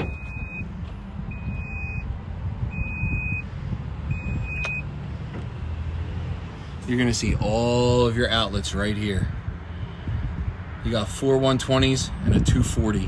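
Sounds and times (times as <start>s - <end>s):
steady low rumble: 0.0s - 6.1s
high electronic beeps: 1.3s - 2.1s.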